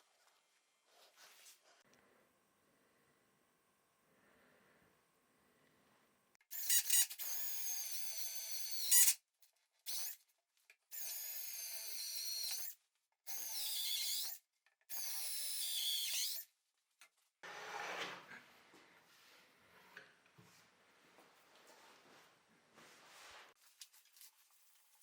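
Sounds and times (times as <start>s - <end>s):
power drill whining: 6.5s - 9.2s, 11.0s - 16.5s.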